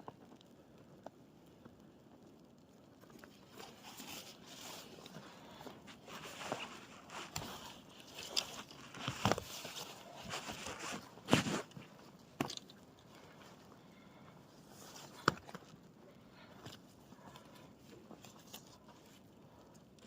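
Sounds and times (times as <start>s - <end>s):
footsteps crunching in snow: 5.8s - 11.9s.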